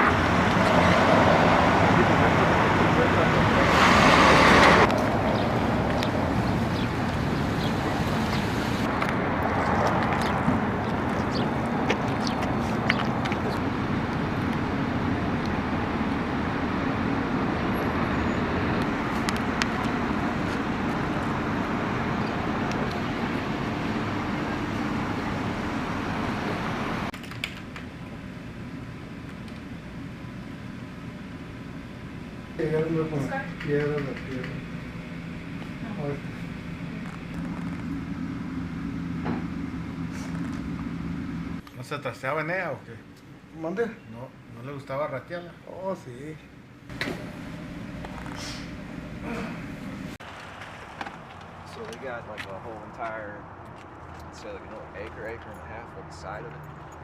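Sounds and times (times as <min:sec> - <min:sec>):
car road noise: 0:00.0 - 0:41.6, 0:46.4 - 0:57.0
steady background hum: 0:18.8 - 0:56.4.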